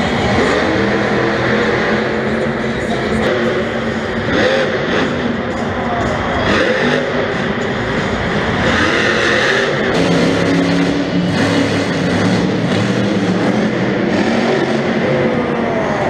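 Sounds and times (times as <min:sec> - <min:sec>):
monster truck engines revving: 0:00.0 - 0:16.0.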